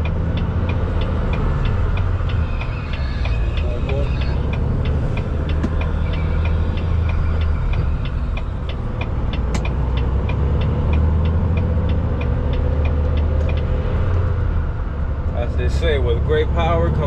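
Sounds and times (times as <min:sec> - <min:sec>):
even ticking: 0:00.0 - 0:14.4
truck engine droning: 0:00.0 - 0:17.0
sharp click: 0:07.7 - 0:13.7.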